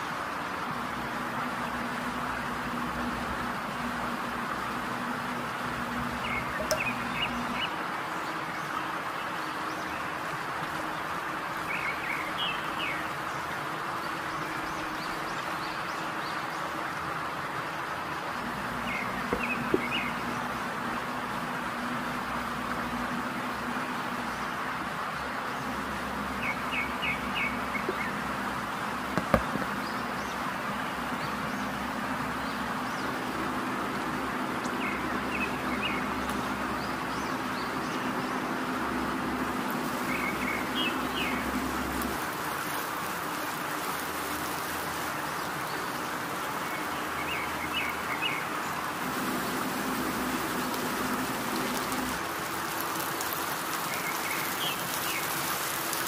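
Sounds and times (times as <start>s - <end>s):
steady hiss: 0.0s - 56.0s
birds chirping in trills: 0.7s - 56.0s
low hum: 0.8s - 7.6s, 18.3s - 42.4s, 48.9s - 52.3s.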